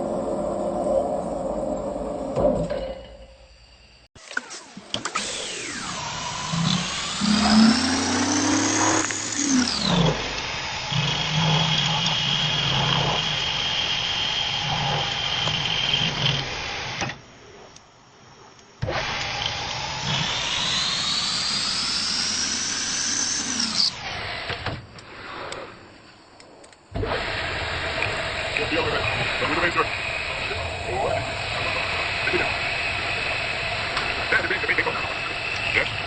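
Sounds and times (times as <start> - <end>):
lathe motor whining: 4.9 - 17.2, 18.8 - 24.6, 27.0 - 36.0.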